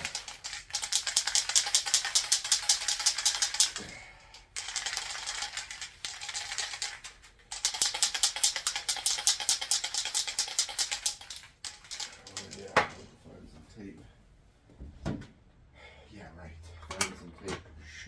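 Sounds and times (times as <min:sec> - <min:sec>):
spray can ball rattling: 0:00.0 - 0:03.8, 0:04.4 - 0:13.0.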